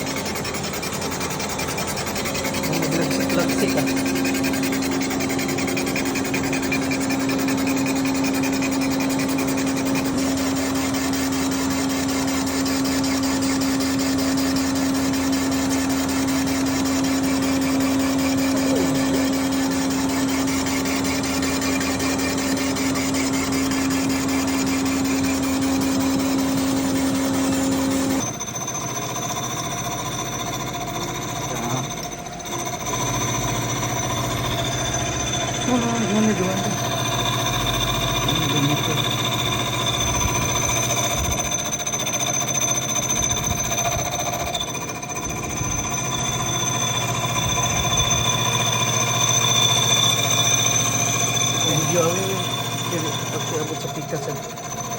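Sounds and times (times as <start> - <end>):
machinery humming: 0.0 - 54.9
thin high whine: 0.0 - 54.9.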